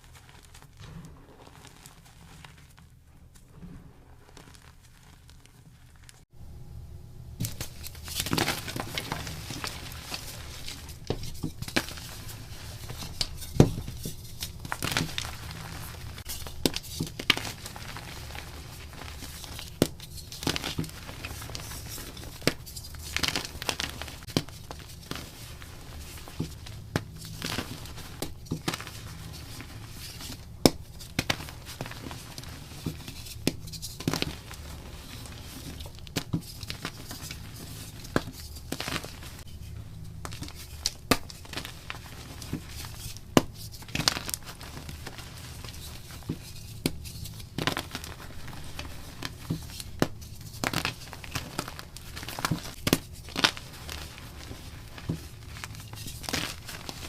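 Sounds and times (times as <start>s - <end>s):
faint low hum: 0.8s - 16.6s
chalk being crushed: 7.4s - 57.0s.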